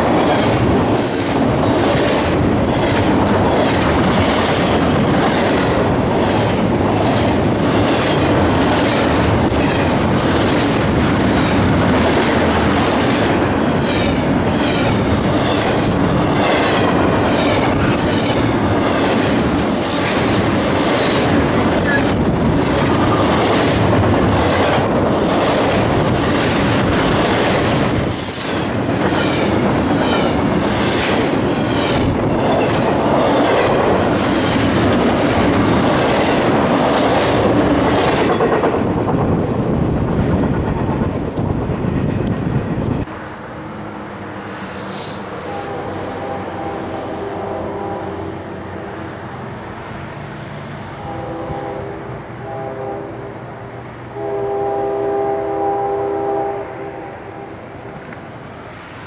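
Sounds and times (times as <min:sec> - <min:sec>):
wheels clickety-clack: 0:00.0 - 0:43.1
freight train rumbling past: 0:00.0 - 0:59.0.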